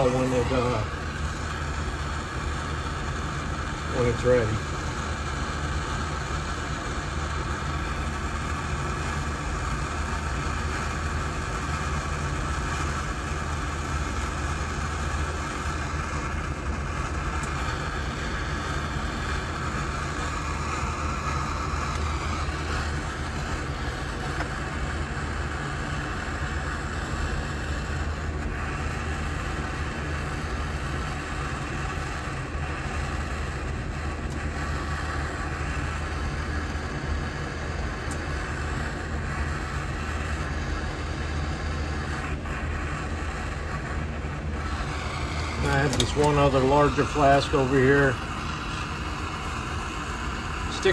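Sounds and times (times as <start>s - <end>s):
furnace rushing noise: 44.6s - 49.5s.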